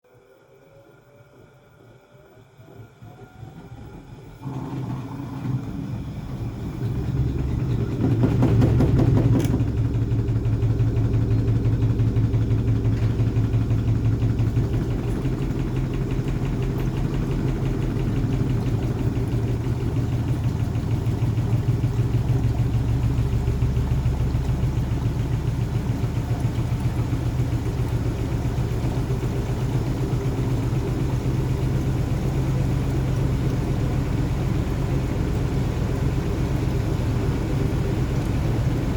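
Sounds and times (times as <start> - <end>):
washing machine spinning: 0.1 - 38.9.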